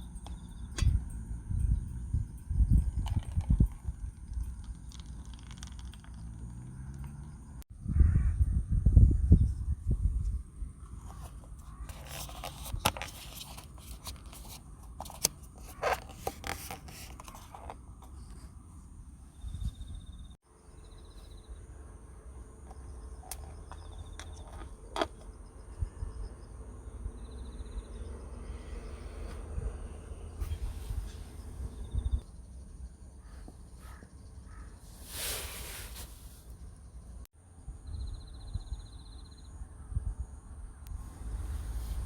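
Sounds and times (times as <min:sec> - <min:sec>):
wind rumble on microphone: 0:00.0 - 0:06.5, 0:07.7 - 0:13.3, 0:19.2 - 0:20.4, 0:23.4 - 0:32.3, 0:36.9 - 0:42.0
high bird trills: 0:33.2 - 0:34.9.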